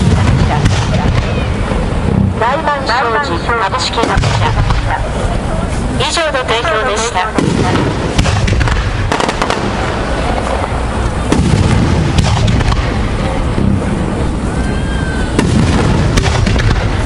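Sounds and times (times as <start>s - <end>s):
firework shells booming: 0.0s - 2.3s, 4.0s - 5.2s, 7.3s - 14.4s, 15.2s - 17.0s
fireworks crackling: 0.0s - 17.0s.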